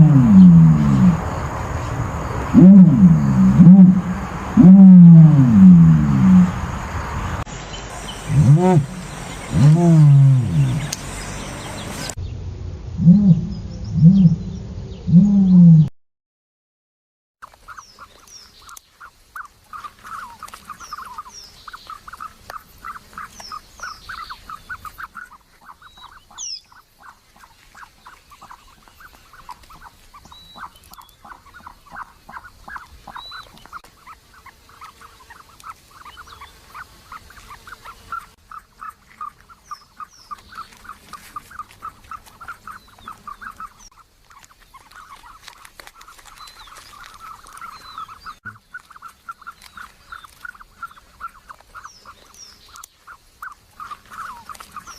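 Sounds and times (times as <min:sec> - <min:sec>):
birds calling repeated notes: 0:00.0 - 0:12.2, 0:13.0 - 0:15.9, 0:17.4 - 0:54.9
higher bird chirps: 0:00.0 - 0:12.4, 0:13.0 - 0:15.6.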